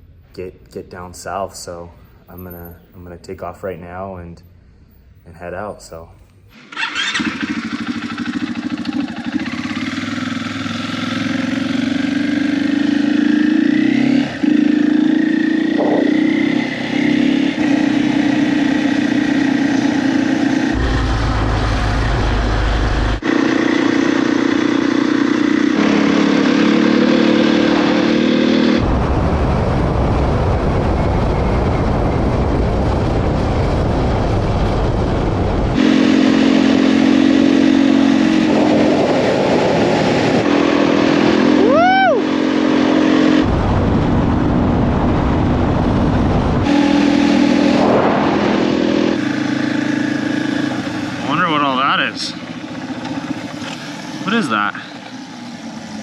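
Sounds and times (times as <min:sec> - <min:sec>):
motorcycle engine accelerating: 0:06.5 - 0:56.0
wind rumble on microphone: 0:15.6 - 0:16.4, 0:28.8 - 0:35.8, 0:38.4 - 0:40.5, 0:43.4 - 0:46.7.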